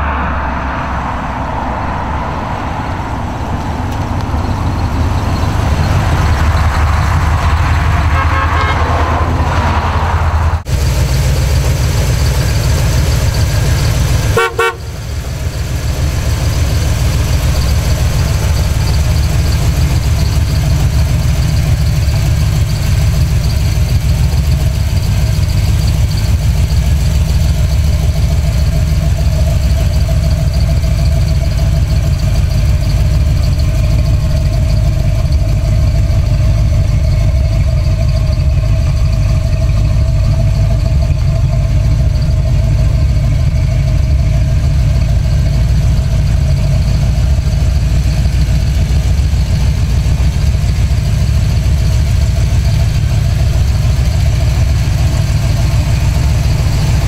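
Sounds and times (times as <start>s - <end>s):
car engine idling: 0.0s - 57.0s
car horn toot: 7.8s - 10.1s, 14.2s - 15.2s.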